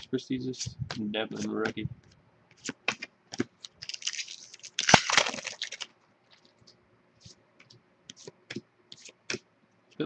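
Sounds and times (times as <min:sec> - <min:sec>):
card pack crinkling: 0:03.5 - 0:06.6.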